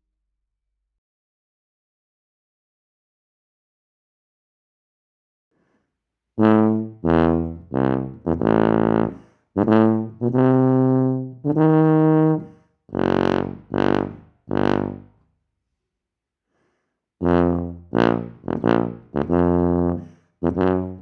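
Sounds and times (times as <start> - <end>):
tuba playing low notes: 6.4 - 15.1, 17.2 - 21.0.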